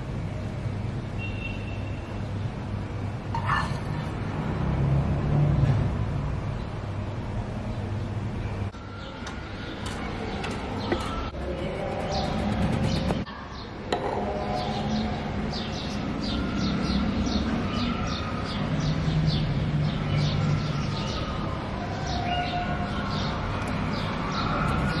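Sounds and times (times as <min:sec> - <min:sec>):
birds chirping: 0:07.7 - 0:25.0.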